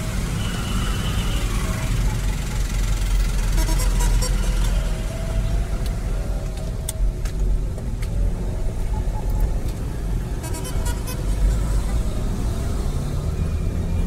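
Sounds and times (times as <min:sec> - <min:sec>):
car and truck engines rumbling: 0:00.0 - 0:14.0.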